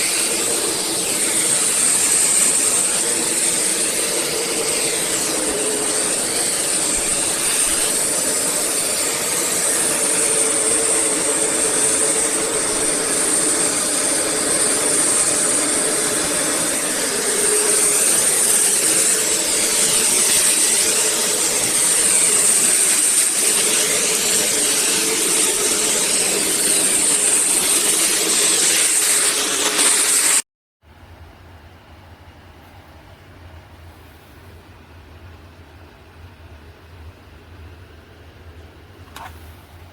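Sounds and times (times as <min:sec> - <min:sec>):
vacuum cleaner whining: 0:00.0 - 0:30.4.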